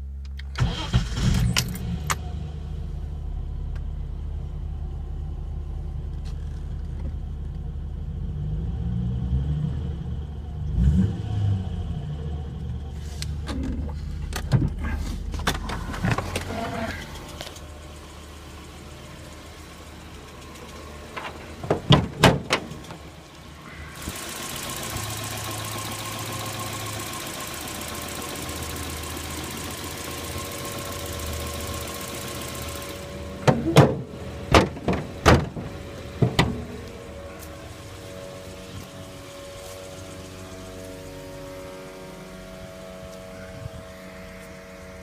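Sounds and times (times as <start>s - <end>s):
car engine running: 0.0s - 8.8s, 11.7s - 45.0s.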